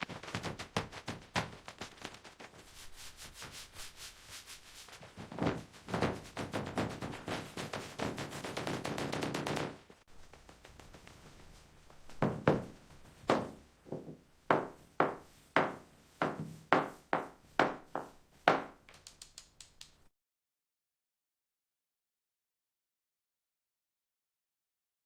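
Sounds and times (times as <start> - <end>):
sharp knocks on wood: 14.5 - 18.7.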